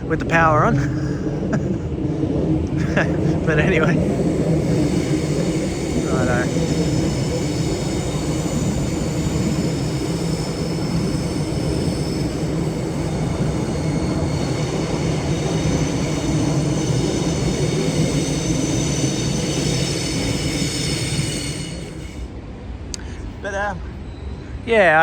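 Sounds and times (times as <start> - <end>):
train wheels rumbling on track: 0.0 - 25.0
high squealing of wheels: 4.0 - 22.4, 23.8 - 24.9.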